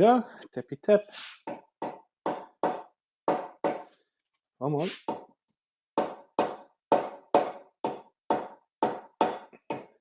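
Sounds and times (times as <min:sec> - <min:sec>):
hammer knocking on metal: 0:01.5 - 0:03.9.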